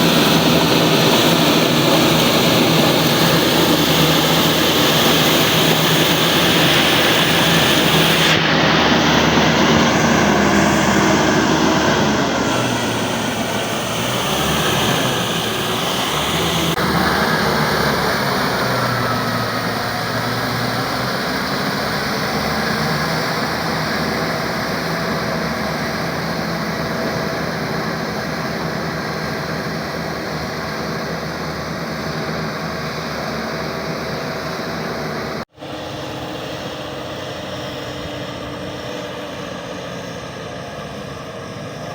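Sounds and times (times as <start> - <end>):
diesel tractor engine running: 0.0 - 41.9.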